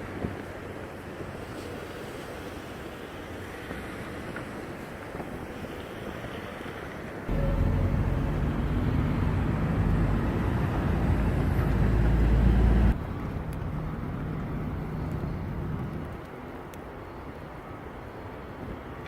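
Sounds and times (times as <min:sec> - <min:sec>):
vehicle engine humming: 0:07.3 - 0:16.1
traffic rumble: 0:07.3 - 0:16.4.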